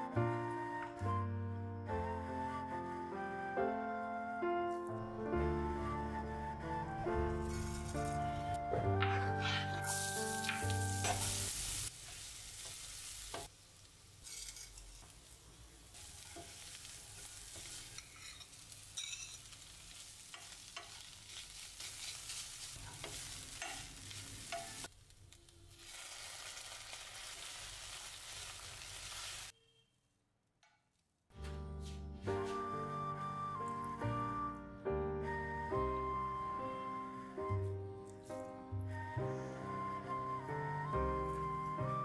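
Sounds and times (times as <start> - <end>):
onion and garlic sizzling in oil: 7.4 - 29.6
wooden spatula scraping pan: 9.0 - 10.0.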